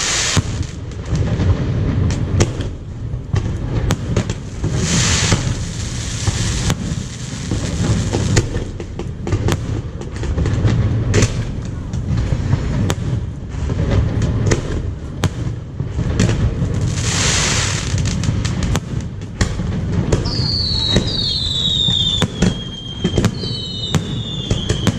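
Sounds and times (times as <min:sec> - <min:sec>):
crackling hiss: 0:00.0 - 0:15.0, 0:15.6 - 0:24.9
firework bursts rumbling: 0:00.0 - 0:24.9
firework cracks and pops: 0:00.0 - 0:24.9.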